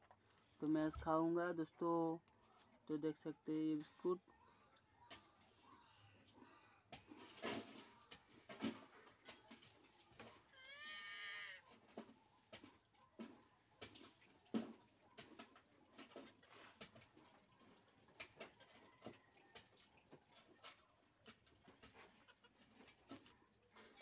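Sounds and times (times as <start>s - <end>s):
wavering animal call: 10.6s - 11.6s.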